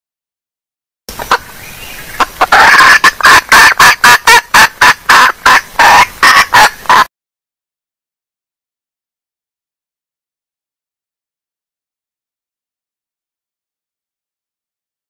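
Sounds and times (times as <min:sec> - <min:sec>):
junglefowl hen clucking: 0:01.1 - 0:07.1.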